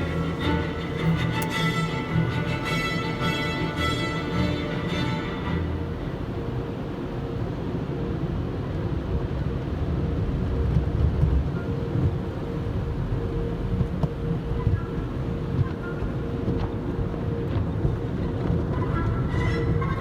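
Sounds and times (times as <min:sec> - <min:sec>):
faint motor hum: 0:00.0 - 0:08.4
car wash machinery rumble: 0:00.0 - 0:19.4.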